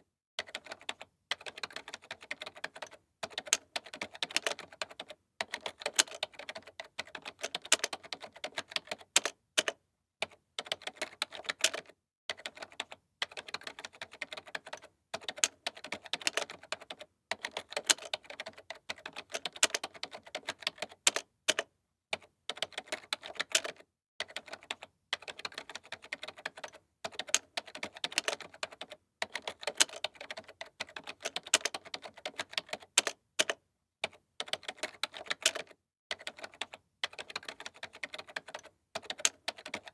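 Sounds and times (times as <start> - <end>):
keyboard typing clicks: 0.4 - 12.7, 22.6 - 39.9.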